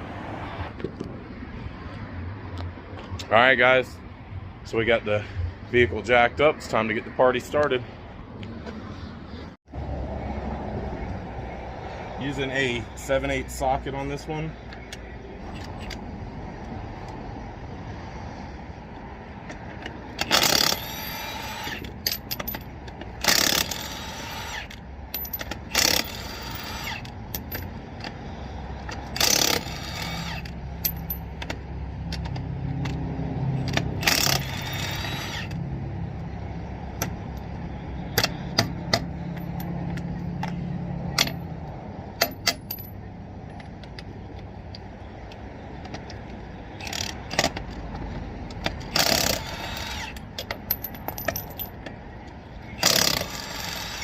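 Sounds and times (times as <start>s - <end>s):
impact wrench bursts: 20.2s - 22.6s, 23.2s - 27.5s, 29.1s - 31.2s, 33.7s - 35.6s, 48.8s - 51.4s, 52.8s - 54.0s
metallic clinks of nuts and socket: 21.9s - 22.7s, 25.1s - 26.1s, 30.8s - 33.0s, 50.2s - 51.9s.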